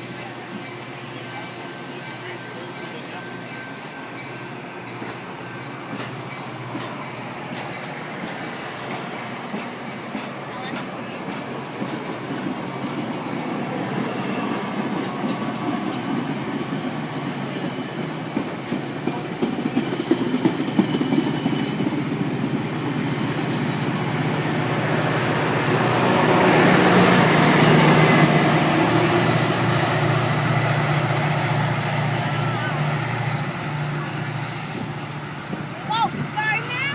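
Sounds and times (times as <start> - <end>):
low train hum: 0.0 - 36.9
train wheels clacking over rail joints: 3.6 - 23.6.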